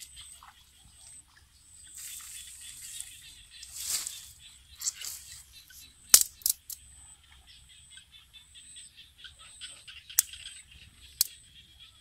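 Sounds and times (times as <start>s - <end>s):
faint bird chirping: 0.0s - 12.0s
sharp clicks: 6.1s - 6.8s.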